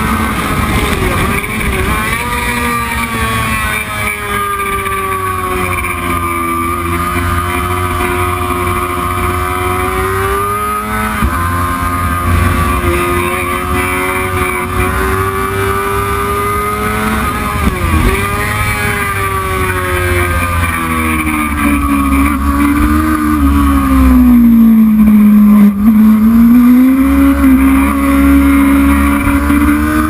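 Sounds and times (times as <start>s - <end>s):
racing motorcycle engine revving: 0.0s - 30.0s.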